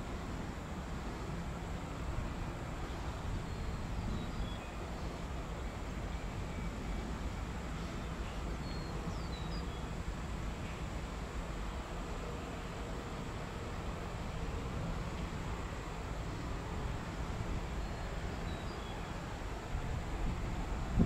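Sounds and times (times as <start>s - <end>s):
faint bird chirps: 7.8s - 9.9s.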